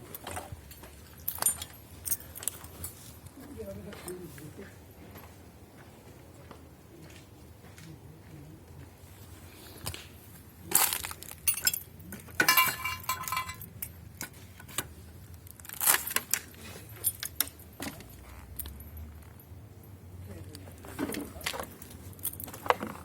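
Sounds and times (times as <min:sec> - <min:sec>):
scrap metal clinking: 0:00.1 - 0:03.2, 0:10.7 - 0:14.4.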